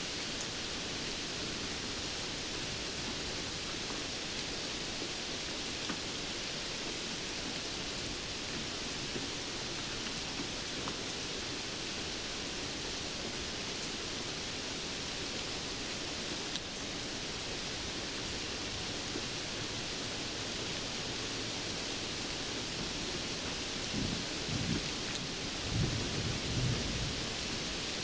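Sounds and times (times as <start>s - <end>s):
steady rainfall: 0.0s - 28.0s
low thunder rumble: 23.8s - 28.0s.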